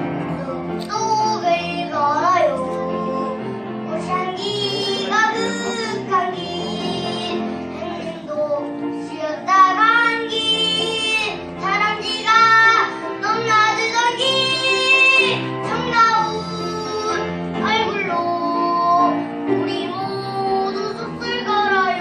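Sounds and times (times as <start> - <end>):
instrumental accompaniment: 0.0 - 22.0
child singing: 0.1 - 22.0.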